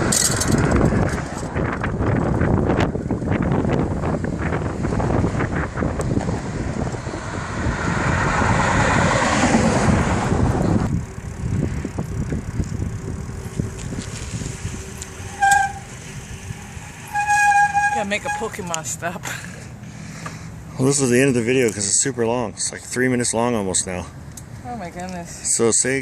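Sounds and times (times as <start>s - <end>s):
wind rushing over microphone: 0.0s - 17.3s
road traffic: 0.0s - 26.0s
horn toot: 15.2s - 18.6s.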